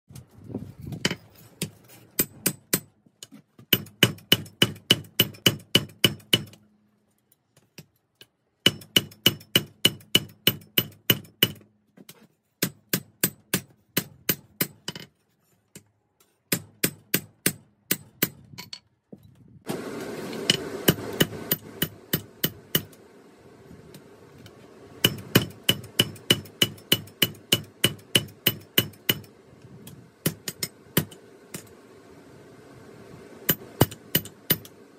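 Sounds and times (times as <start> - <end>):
hammer striking steel on anvil: 3.7 - 6.6, 8.6 - 11.6, 16.5 - 18.4, 20.4 - 23.0, 25.0 - 31.7, 33.5 - 34.7
steady rushing noise: 19.7 - 34.9.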